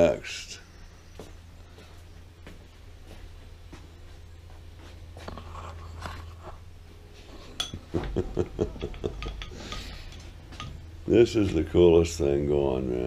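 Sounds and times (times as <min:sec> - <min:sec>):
steady low hum: 0:00.0 - 0:13.0
metal knocks and clinks: 0:08.8 - 0:10.9.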